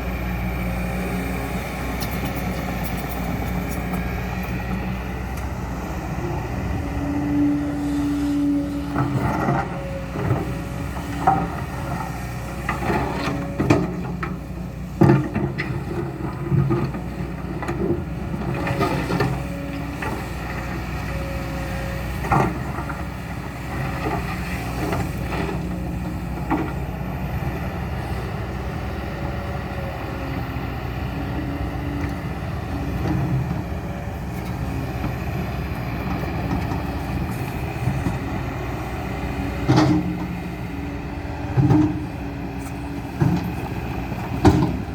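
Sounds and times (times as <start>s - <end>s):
excavator engine rumbling: 0.0s - 44.9s
metal clanks and knocks: 44.2s - 44.9s.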